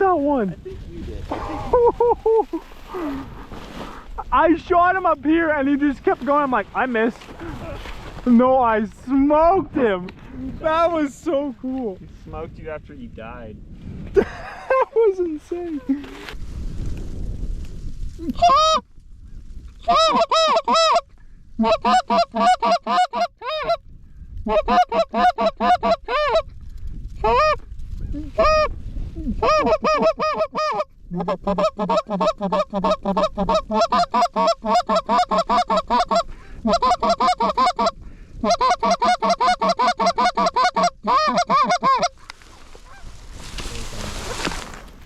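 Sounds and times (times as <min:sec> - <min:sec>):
goose honking and clucking: 0:19.8 - 0:21.0, 0:21.6 - 0:23.8, 0:24.5 - 0:26.5, 0:29.4 - 0:43.1.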